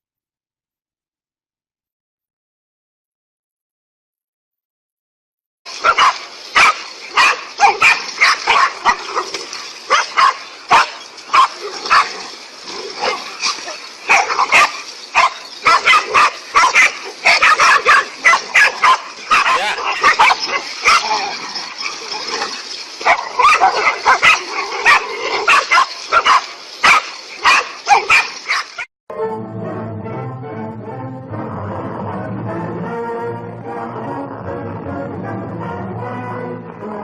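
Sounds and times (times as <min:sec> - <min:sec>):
animals barking and yelping: 0:05.7 - 0:28.9.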